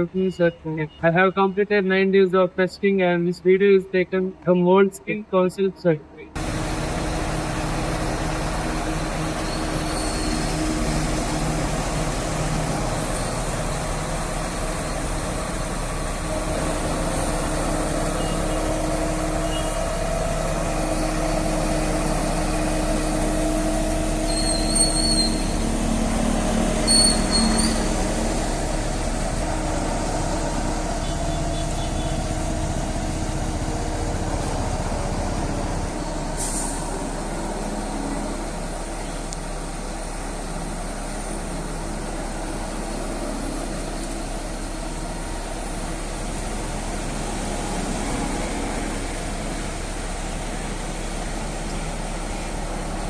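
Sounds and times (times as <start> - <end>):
diesel engine running: 0.0 - 53.0
high-pitched squeals: 24.1 - 25.9, 26.8 - 28.4.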